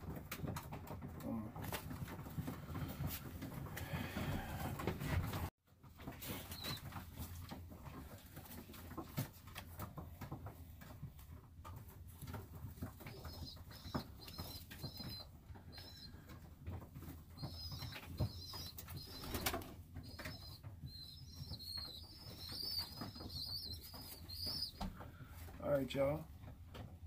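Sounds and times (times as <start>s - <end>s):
rustling: 1.6s - 27.0s
birds chirping: 6.4s - 6.9s, 12.5s - 26.2s.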